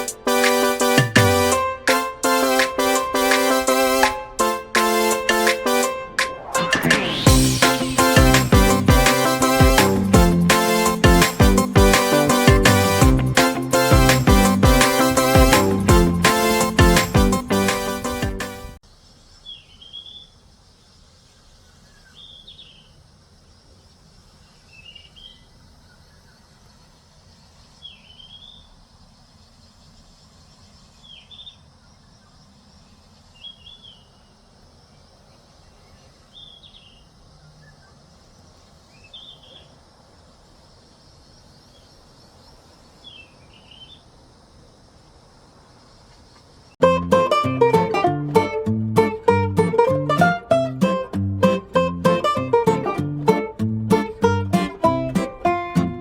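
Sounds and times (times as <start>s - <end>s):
outdoor background noise: 0.0s - 56.0s
bird chirping: 19.1s - 39.8s, 41.0s - 44.1s.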